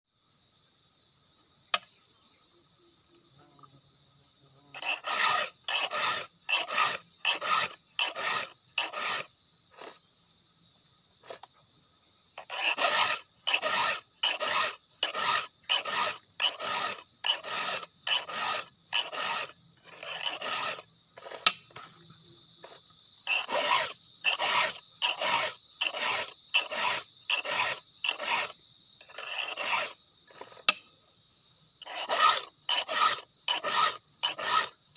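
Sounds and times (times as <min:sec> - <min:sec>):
insect chirring: 0:00.1 - 0:34.9
file rasping on chainsaw chain: 0:04.7 - 0:10.0, 0:11.2 - 0:11.5, 0:12.4 - 0:21.8, 0:22.6 - 0:30.8, 0:31.8 - 0:34.8.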